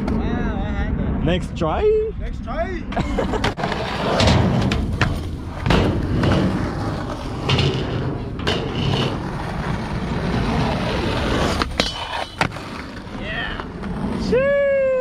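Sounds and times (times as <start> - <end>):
skateboard wheels rolling: 2.9 - 15.0
skateboard clacking on ground: 3.4 - 14.1.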